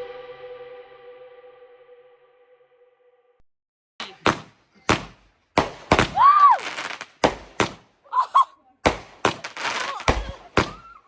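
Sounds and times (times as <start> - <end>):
fireworks bangs: 4.0 - 8.0, 8.8 - 11.0.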